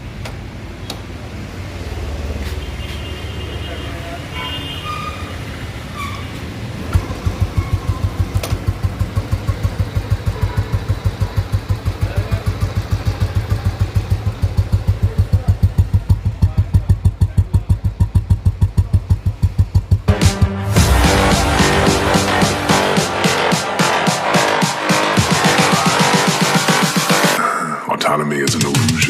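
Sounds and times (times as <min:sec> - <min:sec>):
motorcycle engine idling: 0:07.0 - 0:20.1
music: 0:20.1 - 0:27.5, 0:28.3 - 0:29.0.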